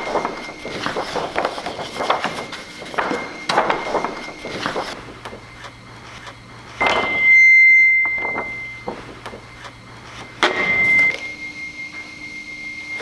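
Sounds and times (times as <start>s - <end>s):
high steady ringing tone: 0.0s - 13.0s.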